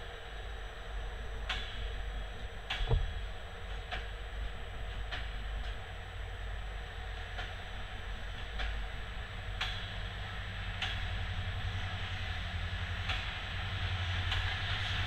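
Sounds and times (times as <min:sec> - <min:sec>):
train wheels rumbling: 0:07.2 - 0:15.0.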